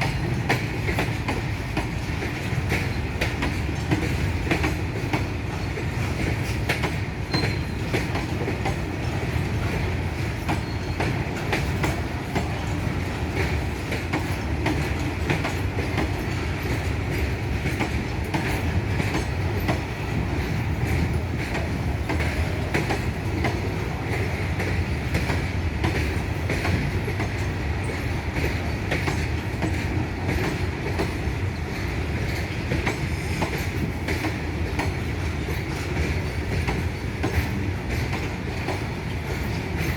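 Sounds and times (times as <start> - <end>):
freight train rumbling past: 0.0 - 39.9
wheels clicking over rail joints: 0.0 - 39.9
high wheel squeal: 7.3 - 7.8.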